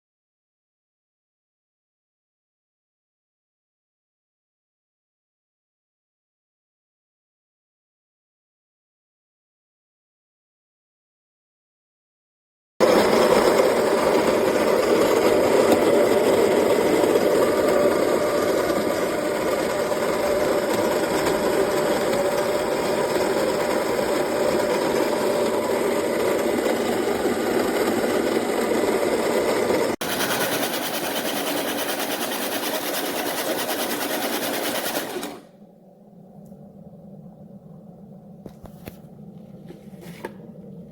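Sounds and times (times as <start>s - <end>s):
coffee grinder motor running: 12.8s - 35.5s.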